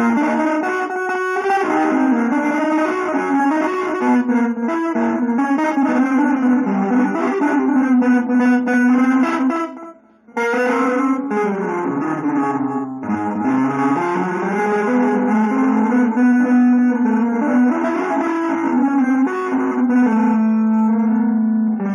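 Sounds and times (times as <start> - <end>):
fast jazz-fusion guitar runs: 0.0 - 21.9.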